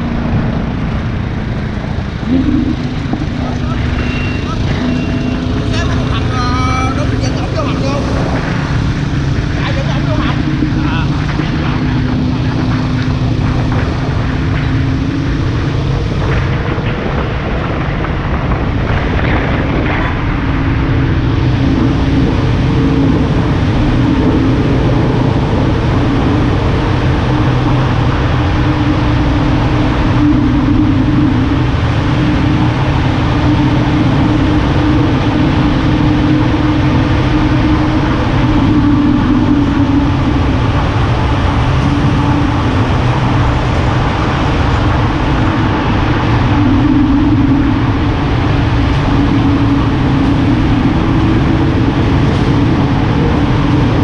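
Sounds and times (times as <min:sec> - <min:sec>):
car engine drone: 0:00.0 - 0:54.0
road and wind noise: 0:00.0 - 0:54.0.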